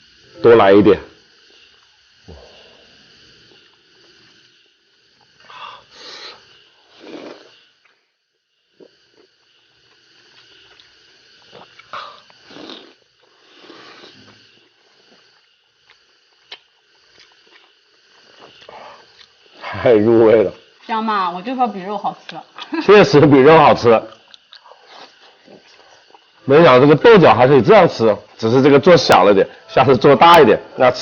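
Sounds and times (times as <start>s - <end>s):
chewing and slurping: 6.3s - 8.0s, 8.8s - 19.6s, 24.1s - 26.4s.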